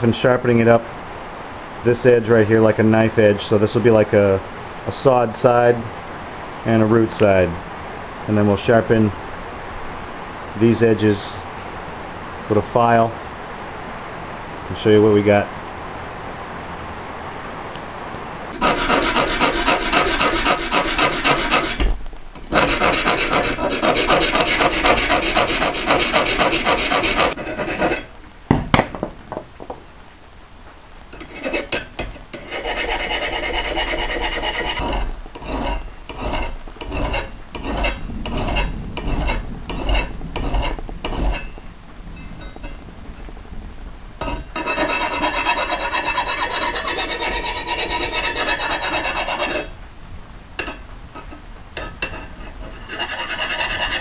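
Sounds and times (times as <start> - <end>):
file scraping steel blade: 18.6 - 28.1, 31.2 - 41.5, 44.2 - 49.7, 50.6 - 54.0.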